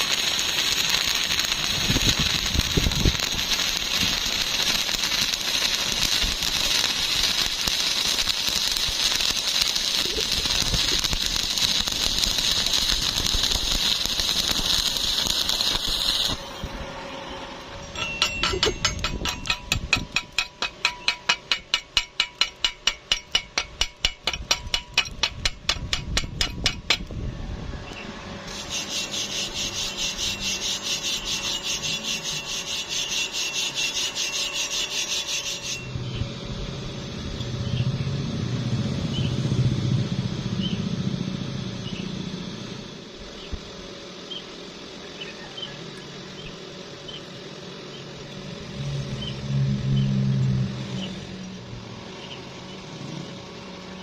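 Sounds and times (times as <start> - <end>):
steady high hiss: 0.0 - 54.0
low hum: 0.1 - 30.3, 35.6 - 45.1, 45.8 - 54.0
wire brush scraping steel: 17.8 - 27.1, 28.5 - 36.0.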